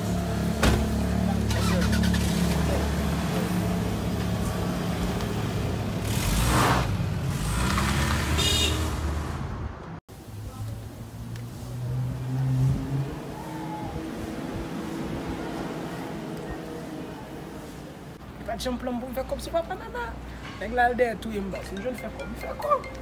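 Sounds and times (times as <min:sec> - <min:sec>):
vehicle pulling away: 0:00.0 - 0:09.8, 0:10.7 - 0:18.2.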